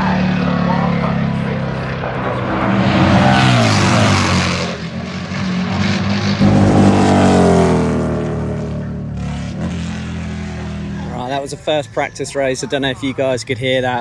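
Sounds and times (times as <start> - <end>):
racing motorcycles passing: 0.0 - 13.1.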